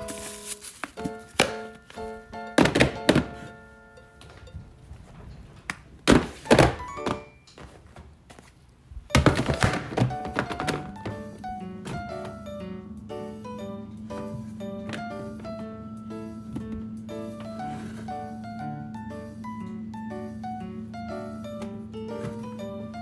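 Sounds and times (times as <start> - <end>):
plucked background music: 0.0 - 4.9, 9.2 - 23.0
loud thumps and clattering: 4.4 - 7.2, 9.1 - 12.4.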